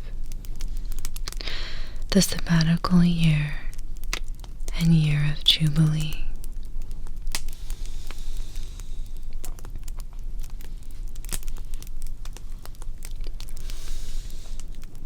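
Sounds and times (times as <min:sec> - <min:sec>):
loud pops of fire: 0:00.0 - 0:02.0, 0:06.4 - 0:15.0
fire crackling: 0:00.0 - 0:15.0
steady low rumble: 0:00.0 - 0:15.0.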